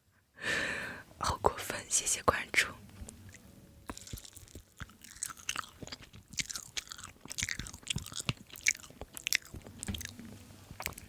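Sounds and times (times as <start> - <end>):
person chewing crispy food: 3.2 - 11.0.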